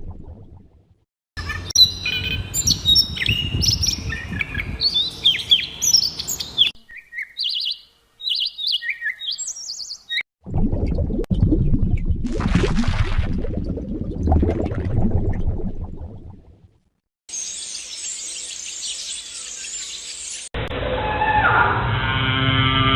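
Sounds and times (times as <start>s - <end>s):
songbirds chirping: 1.4s - 10.2s, 17.4s - 20.5s.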